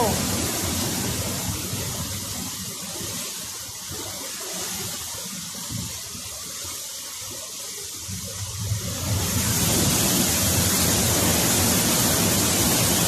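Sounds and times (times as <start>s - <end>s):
water rushing: 0.0s - 13.0s.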